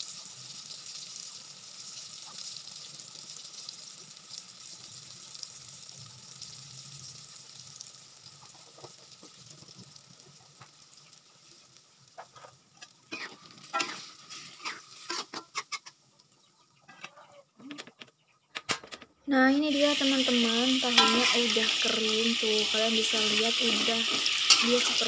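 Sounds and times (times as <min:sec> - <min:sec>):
tofu sizzling in hot oil: 0:00.0 - 0:16.2, 0:19.3 - 0:25.0
spatula scraping a wok: 0:12.2 - 0:15.9, 0:20.7 - 0:25.0.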